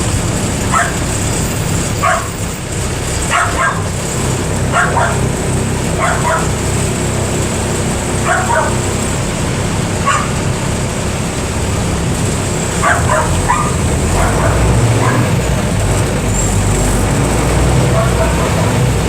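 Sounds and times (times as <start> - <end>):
bus diesel engine running: 0.0 - 19.0
dog barking: 0.7 - 1.1, 1.9 - 2.4, 3.2 - 4.0, 4.7 - 6.7, 8.2 - 9.0, 10.0 - 10.5, 12.7 - 15.5, 17.7 - 19.0.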